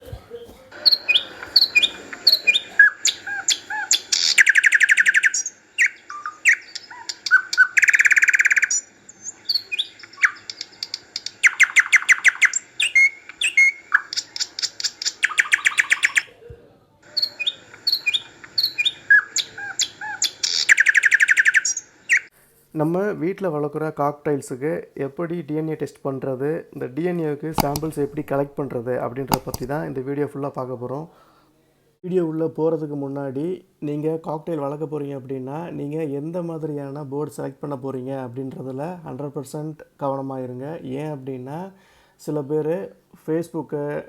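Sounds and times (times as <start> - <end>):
small birds chirping and trilling: 0.3 - 16.3, 17.0 - 22.3.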